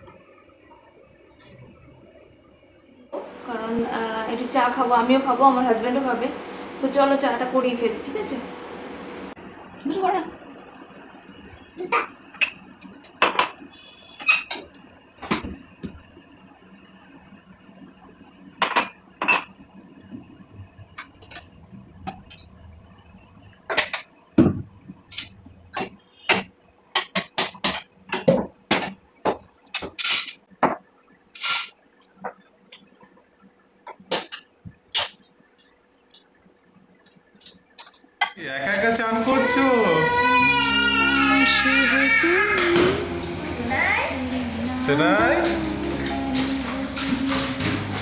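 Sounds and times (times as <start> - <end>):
pots and utensils clanking: 12.3 - 13.6, 14.2 - 15.4.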